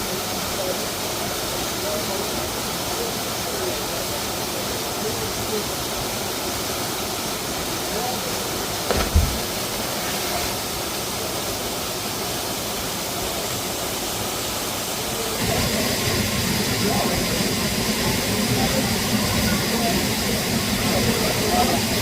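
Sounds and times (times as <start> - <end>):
waterfall rushing: 0.0 - 22.0
short thump: 8.9 - 9.7.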